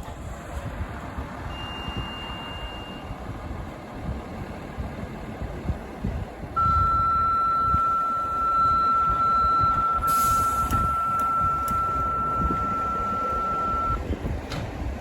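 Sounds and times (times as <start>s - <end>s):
radio paging alert tone: 6.6s - 14.0s.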